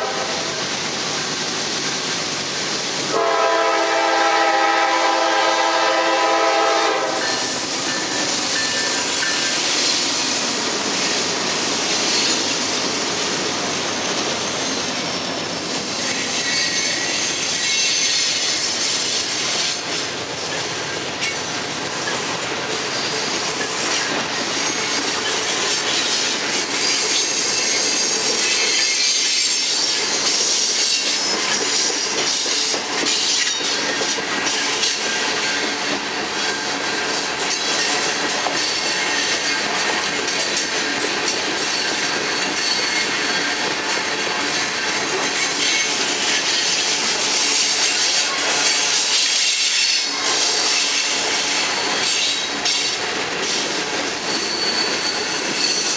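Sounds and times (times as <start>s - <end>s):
train wheels rolling on rails: 0.0s - 55.9s
high-pitched wheel squeal: 16.0s - 19.8s, 54.2s - 55.9s.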